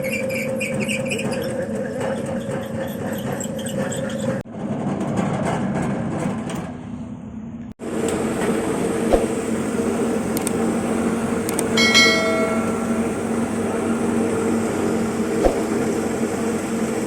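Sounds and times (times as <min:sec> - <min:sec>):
motorised slicing machine running: 0:07.8 - 0:17.0.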